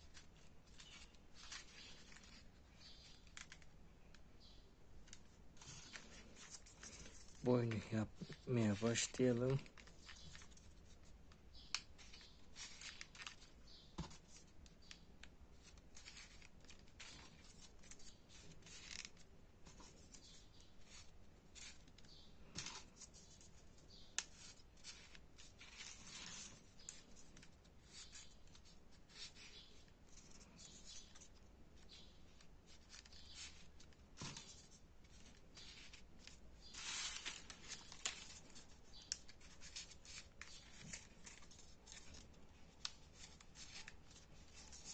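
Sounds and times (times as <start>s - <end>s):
paper rustling and crinkling: 0.0s - 3.7s, 5.0s - 44.9s.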